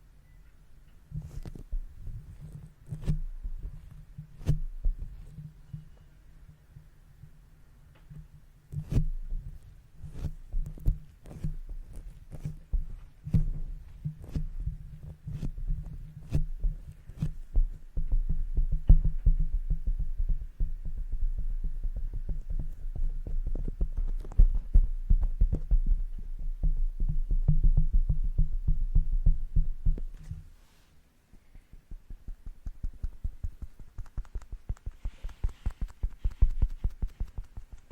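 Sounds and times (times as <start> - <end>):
muffled thuds on microphone: 1.2 - 5.4, 8.1 - 30.6, 31.6 - 37.9
brushes tapping and scratching: 1.2 - 5.8, 8.7 - 19.1, 22.0 - 25.8, 29.9 - 37.9.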